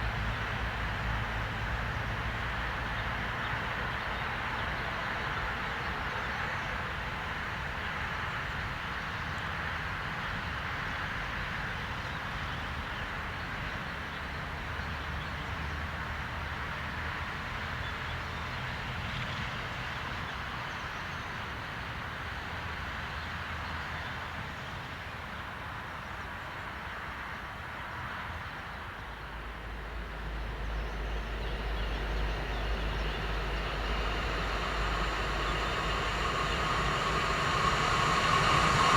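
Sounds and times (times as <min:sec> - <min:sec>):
train rolling on rails: 0:29.4 - 0:38.9
deep hum: 0:31.0 - 0:38.9.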